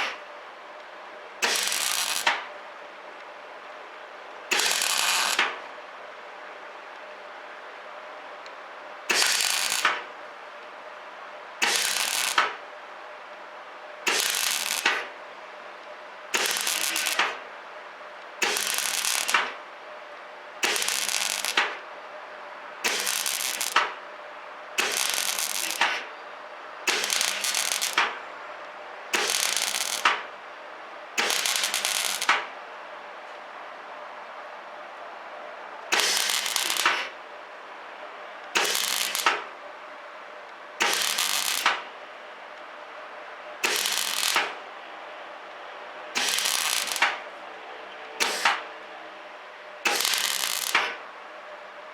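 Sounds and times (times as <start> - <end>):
welder hum: 1.4 - 2.4, 4.5 - 5.5, 9.1 - 10.0, 11.6 - 12.6, 14.0 - 15.1, 16.3 - 17.4, 18.4 - 19.6, 20.6 - 21.8, 22.8 - 24.0, 24.8 - 26.1, 26.8 - 28.2, 29.1 - 30.2, 31.2 - 32.4, 35.9 - 37.1, 38.5 - 39.4, 40.8 - 41.8, 43.6 - 44.6, 46.2 - 47.2, 49.8 - 51.0
welding arc crackling: 1.4 - 2.5, 4.5 - 5.6, 9.1 - 10.1, 11.6 - 12.6, 14.1 - 15.1, 16.3 - 17.4, 18.4 - 19.6, 20.6 - 21.8, 22.8 - 24.0, 24.8 - 26.1, 26.9 - 28.2, 29.1 - 30.3, 31.2 - 32.5, 35.9 - 37.1, 38.6 - 39.5, 40.8 - 41.9, 43.6 - 44.6, 46.2 - 47.2, 48.2 - 48.6, 49.8 - 51.0.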